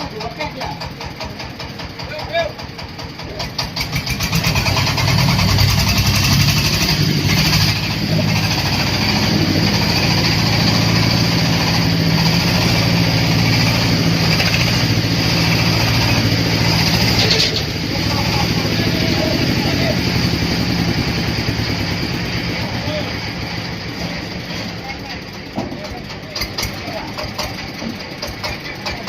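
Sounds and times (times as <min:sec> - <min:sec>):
diesel engine running steadily: 0:00.0 - 0:29.0.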